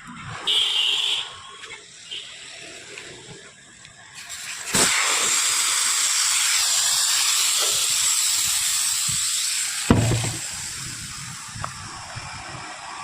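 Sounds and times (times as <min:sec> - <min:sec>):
air rushing out hiss: 0:04.3 - 0:13.0.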